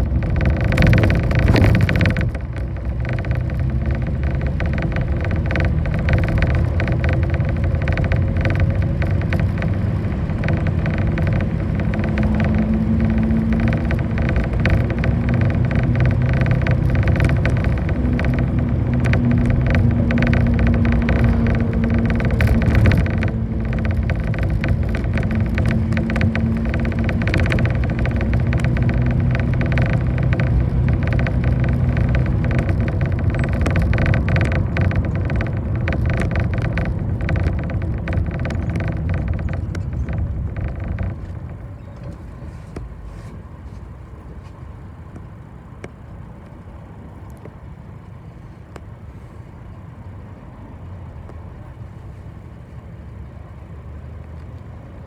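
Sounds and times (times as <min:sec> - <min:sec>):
short clicks and rattles: 0:00.0 - 0:42.9
bus engine hum and road noise: 0:00.0 - 0:55.0.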